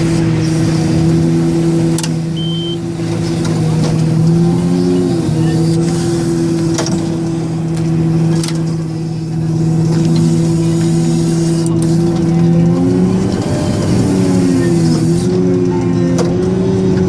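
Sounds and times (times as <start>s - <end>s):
diesel engine droning at high revs: 0.0s - 17.0s.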